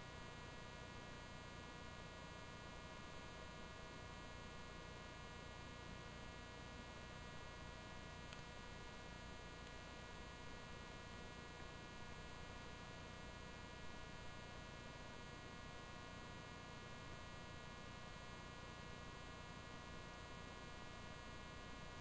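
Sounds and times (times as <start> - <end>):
faint electrical hum: 0.0 - 22.0
faint tick: 8.3 - 8.5.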